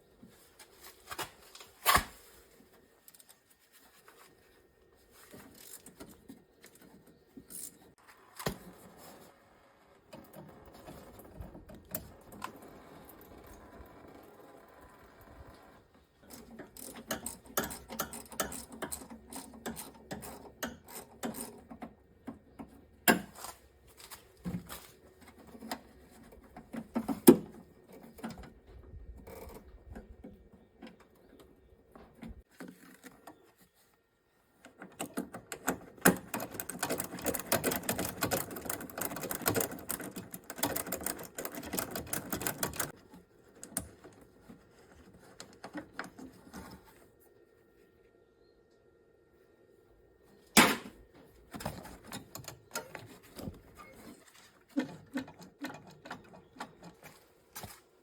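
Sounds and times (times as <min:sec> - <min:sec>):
hand tools clicking on metal parts: 0:16.2 - 0:23.6, 0:34.7 - 0:43.0.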